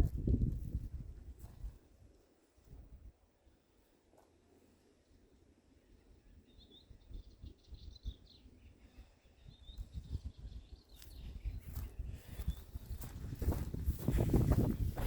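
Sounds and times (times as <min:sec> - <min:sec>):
small bird chirping: 0:06.4 - 0:13.2.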